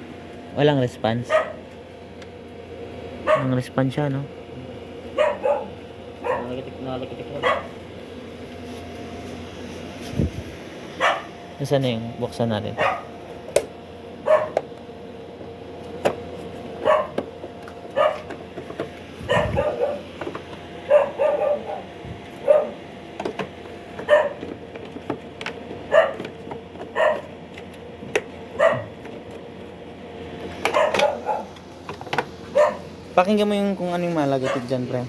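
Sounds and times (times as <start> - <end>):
dog barking: 1.2 - 1.6, 3.2 - 3.6, 5.2 - 6.6, 7.4 - 7.8, 11.0 - 11.4, 12.8 - 13.2, 14.2 - 14.6, 16.8 - 17.2, 17.9 - 18.3, 19.2 - 20.1, 20.9 - 22.8, 24.0 - 24.4, 25.9 - 26.3, 26.9 - 27.3, 28.6 - 29.0, 30.7 - 31.6, 32.5 - 32.9, 34.4 - 34.8.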